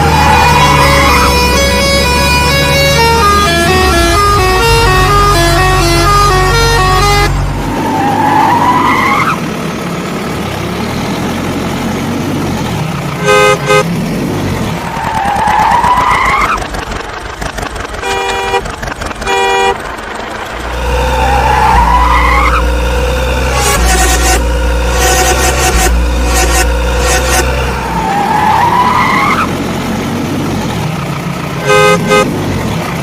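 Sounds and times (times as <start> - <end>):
horn honking short toots: 0.6 - 7.4, 13.2 - 13.8, 18.0 - 19.8, 23.5 - 27.6, 31.6 - 32.3.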